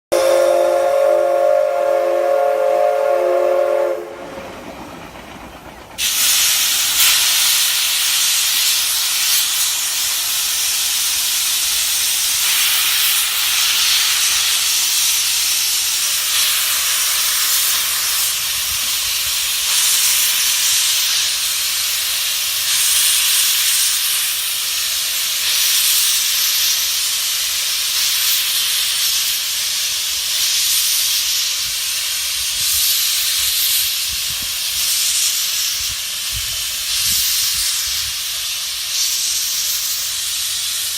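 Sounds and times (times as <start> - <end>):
steam venting hiss: 0.1 - 4.2, 5.9 - 40.9
steam locomotive whistle: 0.1 - 4.3.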